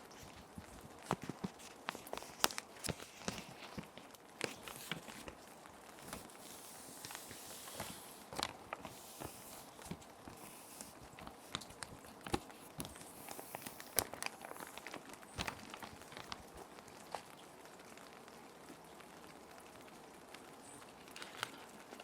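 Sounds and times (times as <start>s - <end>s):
paper sliding into plastic sleeves: 0.0s - 16.4s
plastic sheet protectors crinkling: 0.0s - 17.4s
soft rain hiss: 0.0s - 22.0s.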